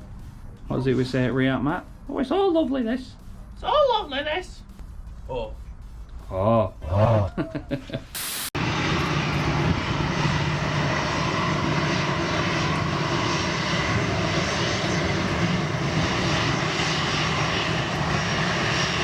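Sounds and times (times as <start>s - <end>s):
aircraft engines rushing: 8.6s - 19.0s.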